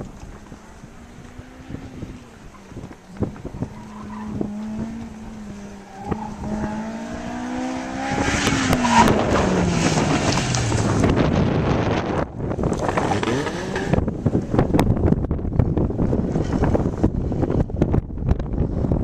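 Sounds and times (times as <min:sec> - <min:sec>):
sports car engine passing by: 0:00.4 - 0:14.1.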